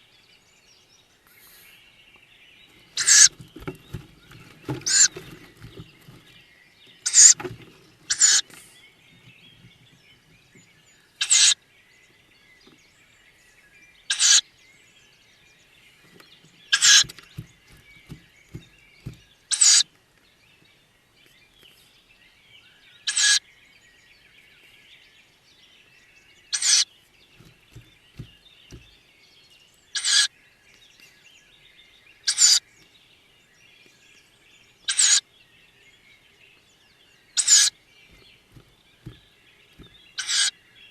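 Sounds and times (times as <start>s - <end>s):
faint background chirping: 0.0s - 40.9s
owl chicks hissing calls: 1.2s - 1.9s, 2.8s - 6.2s, 7.0s - 9.7s, 11.2s - 11.6s, 14.1s - 14.4s, 16.7s - 19.9s, 23.0s - 23.4s, 26.5s - 26.8s, 29.9s - 30.3s, 32.2s - 32.6s, 34.8s - 35.2s, 37.4s - 38.7s, 39.8s - 40.5s
soft knocks: 2.8s - 6.4s, 16.8s - 19.3s, 27.4s - 29.0s, 38.1s - 40.1s.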